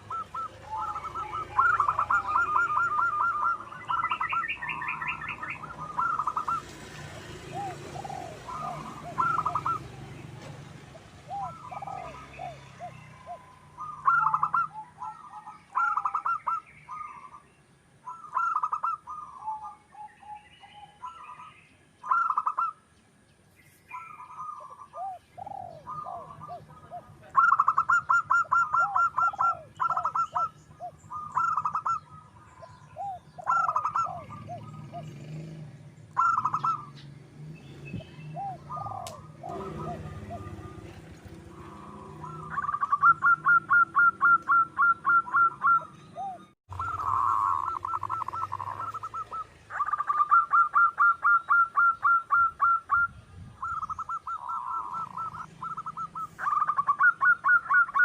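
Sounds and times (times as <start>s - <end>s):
dove cooing: 0.0s - 22.8s, 23.9s - 37.1s, 37.9s - 58.0s.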